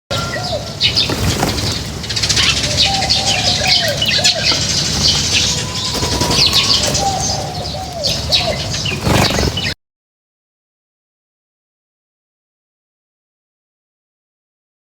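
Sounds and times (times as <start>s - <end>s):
flock of birds chirping: 0.1s - 9.8s
wings flapping and scuffling: 0.7s - 9.8s.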